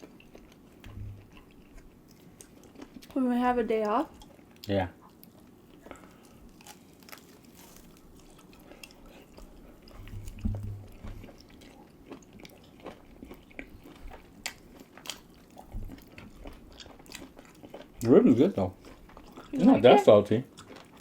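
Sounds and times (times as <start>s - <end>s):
people chewing food: 0.0s - 21.0s
low hum: 9.3s - 11.4s.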